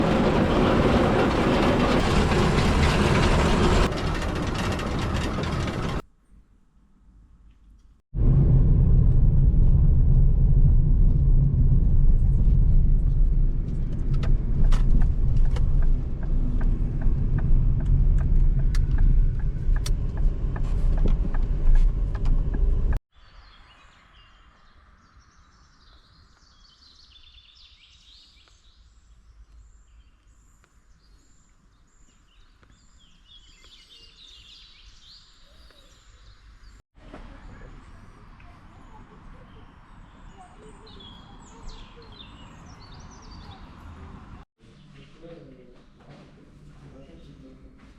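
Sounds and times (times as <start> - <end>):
steel wheels rumbling on track: 0.0 - 6.0, 8.9 - 23.0.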